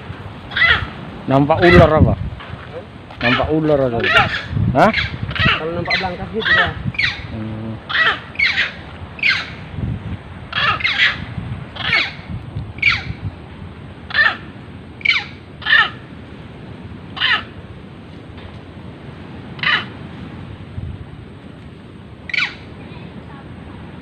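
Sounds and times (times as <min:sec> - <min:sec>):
animal harsh calls: 0:00.4 - 0:02.0, 0:02.8 - 0:09.7, 0:10.4 - 0:13.2, 0:14.0 - 0:16.2, 0:17.1 - 0:17.6, 0:19.5 - 0:20.1, 0:22.3 - 0:22.7.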